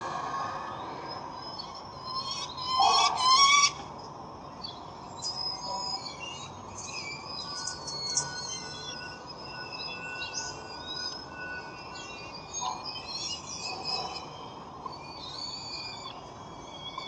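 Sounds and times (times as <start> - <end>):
small birds chirping: 4.0 - 17.0.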